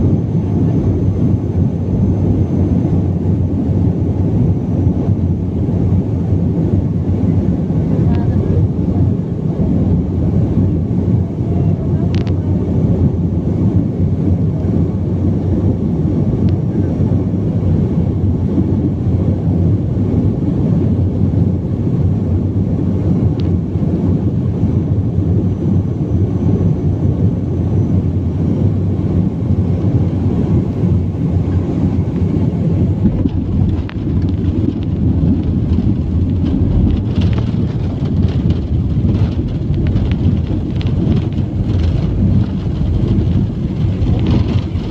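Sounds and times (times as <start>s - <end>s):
airliner cabin engine rumble: 0.0s - 44.9s
faint clicks and rattles: 33.0s - 44.9s.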